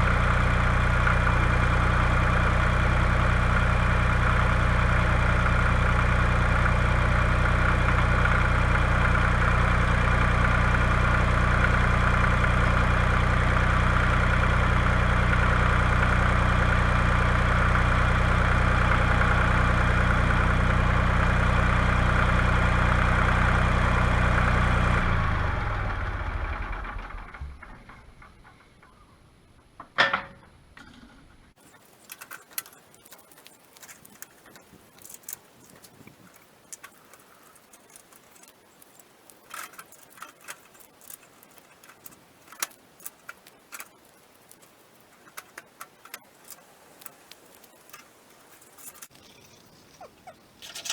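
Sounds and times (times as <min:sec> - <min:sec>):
tractor engine idling: 0:00.0 - 0:29.8, 0:31.5 - 0:50.9
light rattles: 0:31.5 - 0:50.9.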